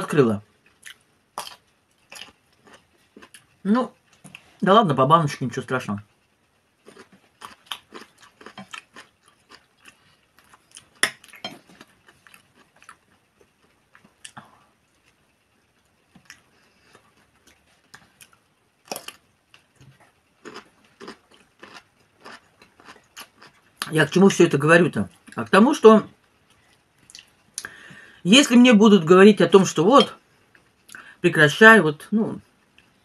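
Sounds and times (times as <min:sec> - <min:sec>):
person chewing food: 0:00.6 - 0:04.5, 0:06.8 - 0:23.9, 0:26.2 - 0:27.9.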